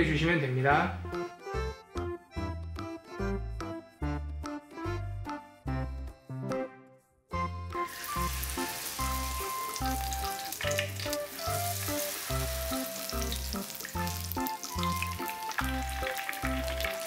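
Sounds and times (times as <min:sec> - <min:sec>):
frying oil sizzling: 0:07.8 - 0:17.0.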